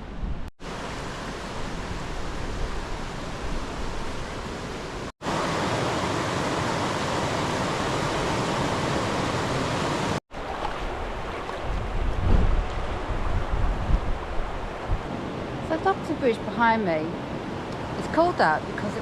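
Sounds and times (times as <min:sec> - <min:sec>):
river rushing over rocks: 0:00.6 - 0:14.8.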